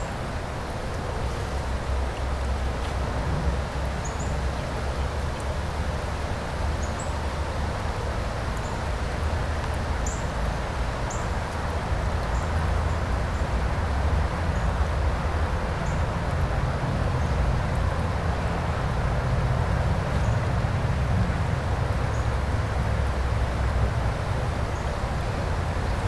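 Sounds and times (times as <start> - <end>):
river rushing: 0.0 - 26.0.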